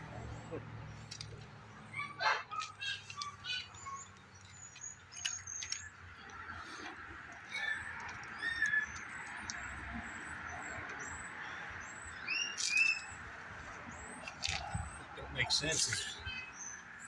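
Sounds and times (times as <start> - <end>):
birds chirping and trilling: 0.0 - 17.0
high thin whistled bird notes: 12.3 - 13.1.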